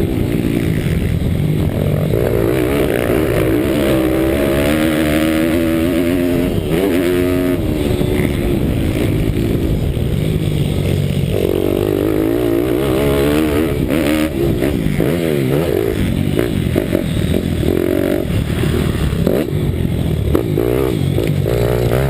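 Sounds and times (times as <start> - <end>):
motorbike engine revving: 0.0 - 22.0.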